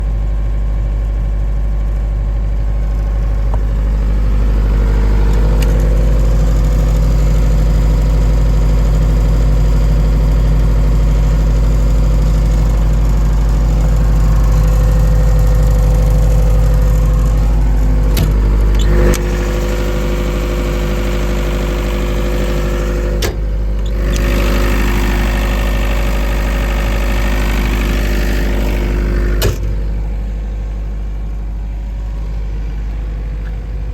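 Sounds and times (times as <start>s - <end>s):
diesel generator running: 0.0s - 33.9s.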